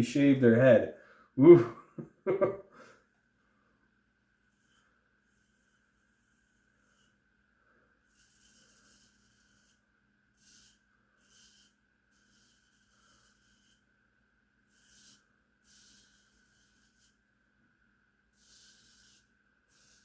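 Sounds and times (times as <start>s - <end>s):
razor scraping stubble: 4.4s - 7.2s, 8.1s - 13.9s, 18.3s - 20.0s.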